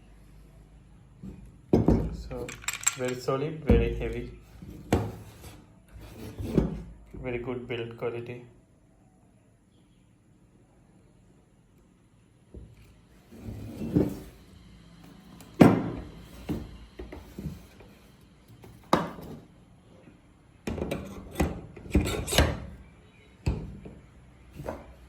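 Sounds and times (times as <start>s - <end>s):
parts knocking on hard surface: 1.7s - 4.0s
parts rubbing and scraping: 2.2s - 3.4s, 4.5s - 7.0s, 12.8s - 14.5s, 16.0s - 19.6s.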